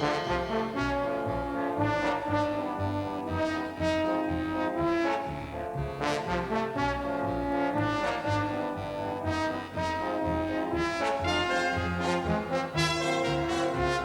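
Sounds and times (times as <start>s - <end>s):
orchestral brass fanfare: 0.0s - 3.2s, 9.8s - 14.0s.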